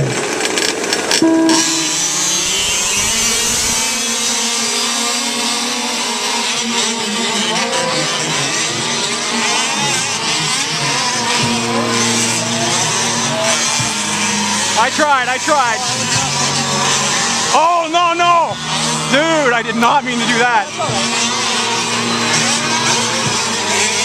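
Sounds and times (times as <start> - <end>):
small two-stroke engines revving: 0.0 - 24.0.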